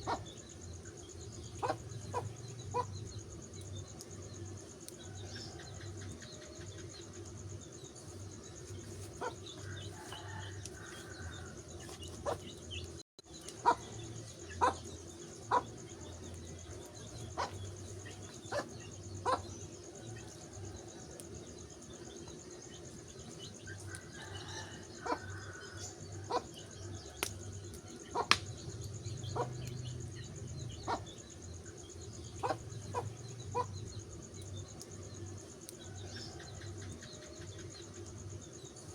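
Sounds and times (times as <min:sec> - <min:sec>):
wood fire crackling and popping: 0:27.2 - 0:29.0.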